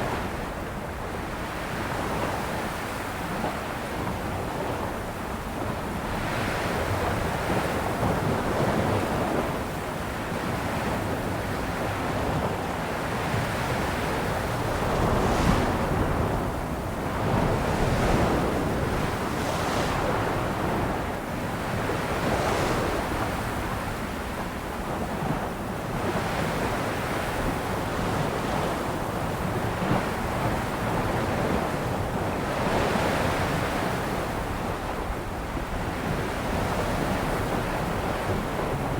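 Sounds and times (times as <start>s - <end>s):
sea waves washing onto shore: 12.5s - 24.0s.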